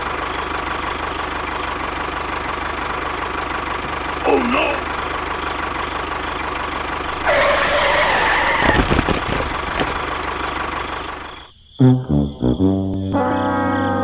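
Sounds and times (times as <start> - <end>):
tractor engine running: 0.0 - 11.6
squealing whine: 7.0 - 10.3
brass-like music: 11.9 - 14.0.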